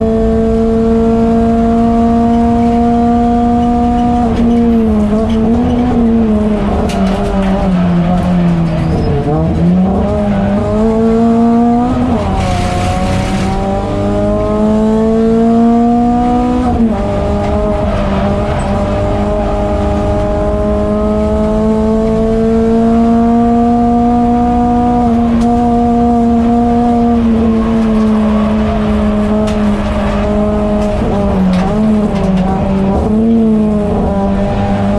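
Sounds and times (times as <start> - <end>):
race car engine running hard: 0.0 - 34.9.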